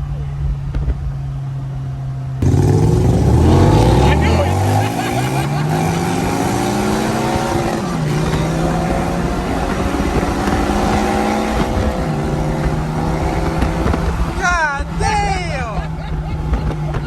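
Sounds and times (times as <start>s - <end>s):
car engine at high revs: 0.6s - 17.0s.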